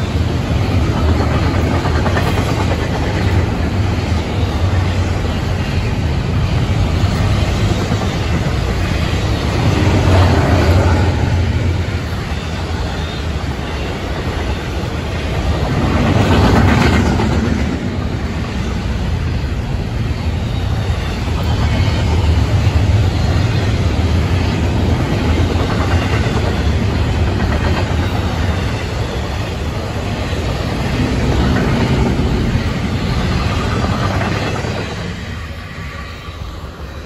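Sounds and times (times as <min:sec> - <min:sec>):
freight train wheels rumbling on rails: 0:00.0 - 0:37.0.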